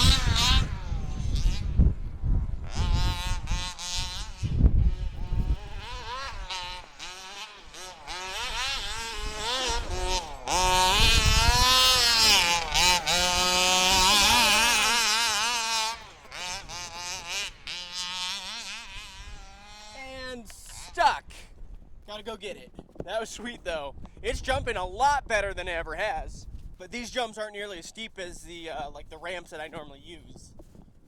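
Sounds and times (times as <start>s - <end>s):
model buggy engine revving: 0.0s - 21.4s.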